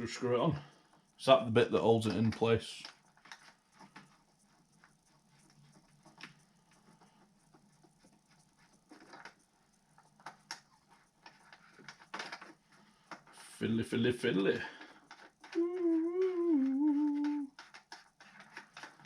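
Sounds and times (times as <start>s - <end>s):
small plastic parts clicking: 14.6s - 19.0s.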